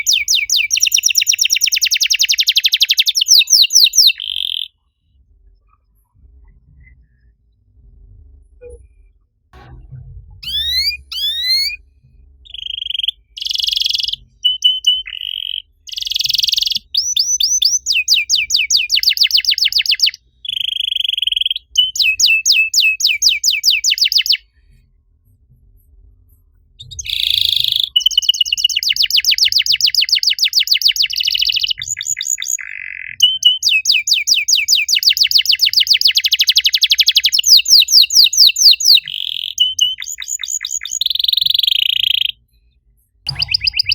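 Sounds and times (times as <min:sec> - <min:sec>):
canary singing trills: 0:00.0 - 0:04.8, 0:10.4 - 0:11.8, 0:12.5 - 0:24.4, 0:26.9 - 0:42.5, 0:43.3 - 0:43.9.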